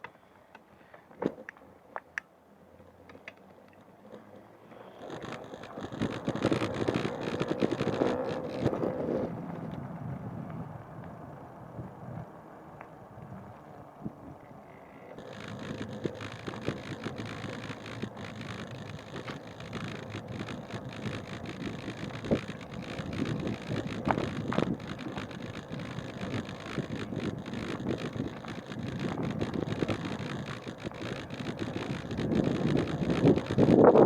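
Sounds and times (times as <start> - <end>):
wind buffeting microphone: 15.2 - 34.0.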